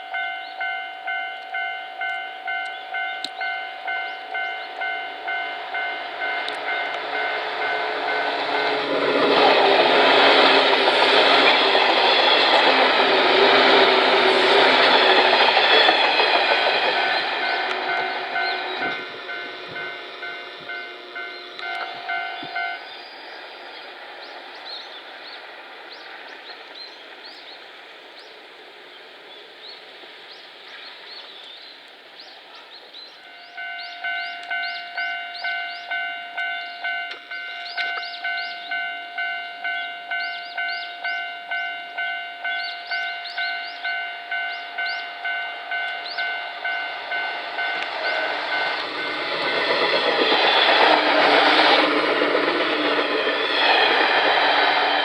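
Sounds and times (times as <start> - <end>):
level-crossing bell ringing: 0.0 - 9.1, 14.4 - 23.0, 33.2 - 51.7
electric train running: 0.0 - 28.0, 33.1 - 55.0.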